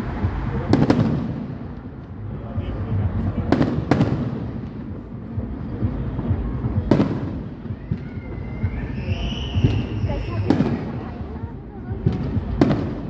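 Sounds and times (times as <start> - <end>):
low rumble: 0.0 - 13.0
firework bang: 0.3 - 1.7, 3.5 - 5.0, 6.2 - 11.1, 12.0 - 13.0
rising firework whistle: 7.1 - 11.0.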